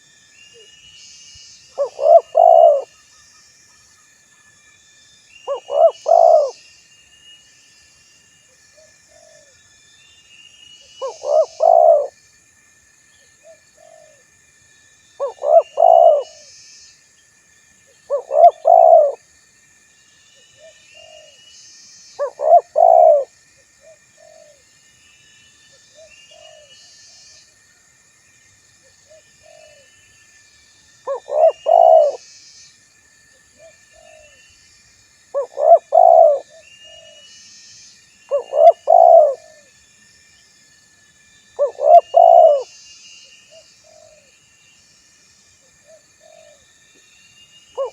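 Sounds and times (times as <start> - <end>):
dove cooing: 1.8 - 3.0, 5.5 - 6.6, 11.0 - 12.2, 13.8 - 14.2, 15.2 - 16.4, 18.1 - 19.2, 22.2 - 24.6, 29.4 - 29.8, 31.1 - 32.2, 35.4 - 37.2, 38.3 - 39.7, 41.6 - 42.7.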